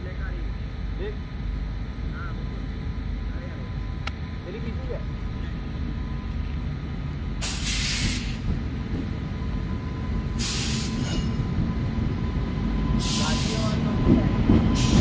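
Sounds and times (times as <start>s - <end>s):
locomotive rumble: 0.0s - 15.0s
train wheels on rails: 3.9s - 15.0s
hissing air bursts: 7.4s - 8.5s, 10.4s - 11.3s.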